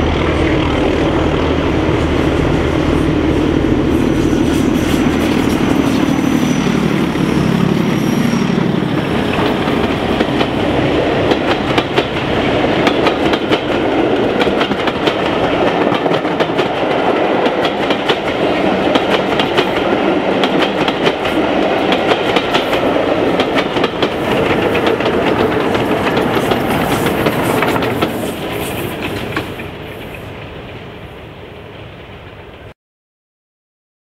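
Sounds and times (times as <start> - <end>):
wheels clicking over rail joints: 9.0 - 30.8.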